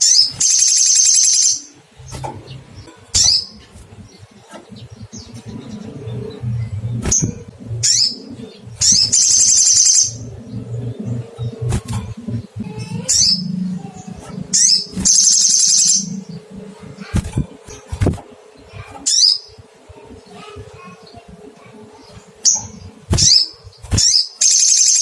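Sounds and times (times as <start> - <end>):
bird calling with high trill: 0.0 - 1.8, 7.8 - 11.7, 12.6 - 16.5, 22.5 - 25.0
low hum: 1.7 - 18.9.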